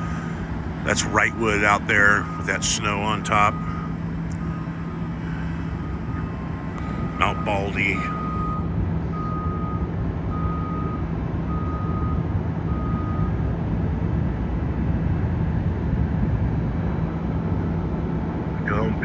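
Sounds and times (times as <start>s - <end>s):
reversing alarm beeping: 0.0s - 13.4s
low rumbling hum: 0.0s - 19.0s.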